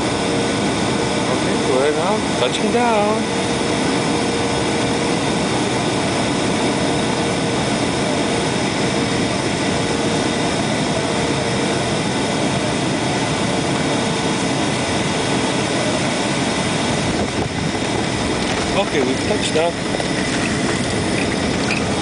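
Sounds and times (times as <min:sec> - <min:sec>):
airliner cabin engine and air rush: 0:00.0 - 0:22.0
faint whining tones: 0:15.4 - 0:22.0.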